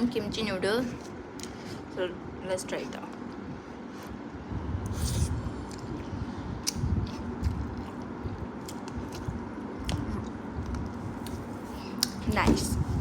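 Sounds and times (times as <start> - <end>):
person chewing noodles: 4.8 - 12.1.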